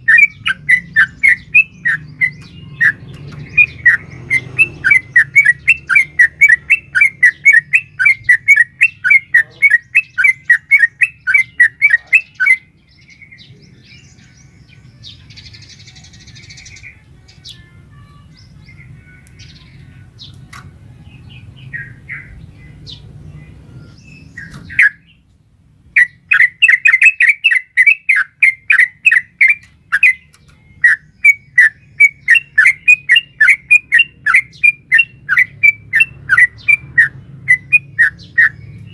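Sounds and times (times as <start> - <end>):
bird chattering calls: 0.0 - 12.7, 26.0 - 38.9.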